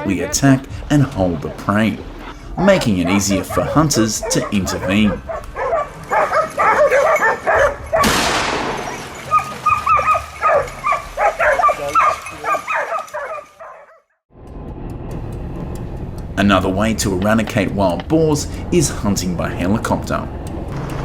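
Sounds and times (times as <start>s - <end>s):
dogs barking and yelping: 0.0s - 14.1s
sudden loud burst: 8.0s - 9.2s.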